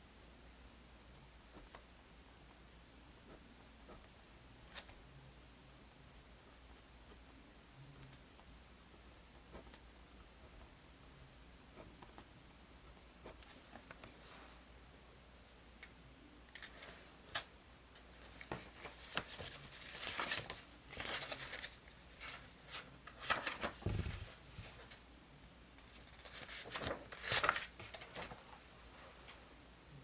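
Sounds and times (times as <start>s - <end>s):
paper rustling: 16.5s - 25.0s, 25.8s - 29.4s.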